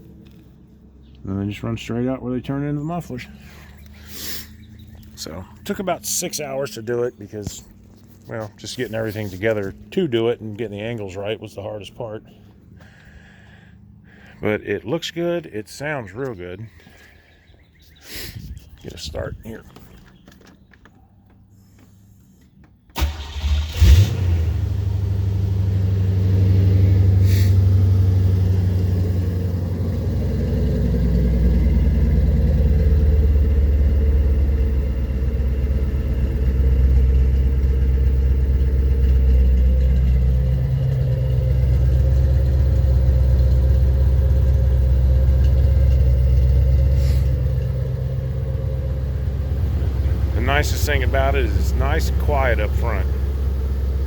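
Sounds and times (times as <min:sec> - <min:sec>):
car engine idling: 0:00.0 - 0:17.9, 0:18.8 - 0:54.0
car engine cranking: 0:22.7 - 0:54.0.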